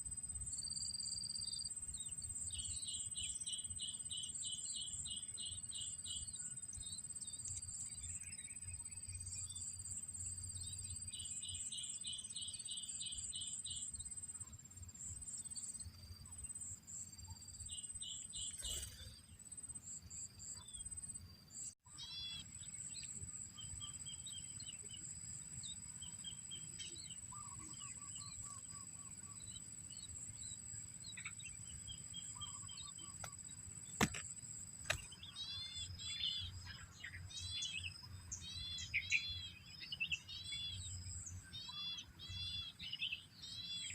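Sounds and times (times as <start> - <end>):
small birds chirping: 0.6 - 43.9.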